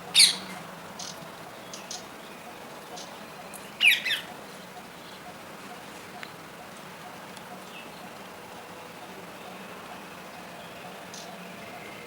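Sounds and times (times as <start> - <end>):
parrot squawking: 0.2 - 0.4.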